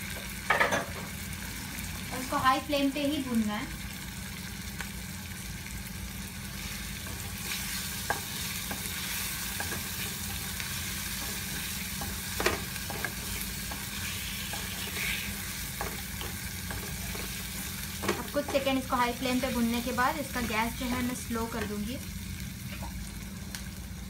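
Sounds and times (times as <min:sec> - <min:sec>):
meat sizzling in oil: 0:00.0 - 0:24.0
spatula knocking and scraping pan: 0:11.1 - 0:15.1.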